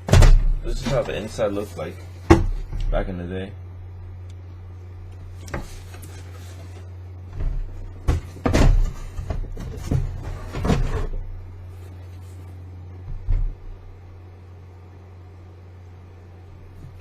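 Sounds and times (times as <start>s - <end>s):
steady low hum: 0.0s - 17.0s
sneakers knocking and scraping: 7.3s - 11.2s.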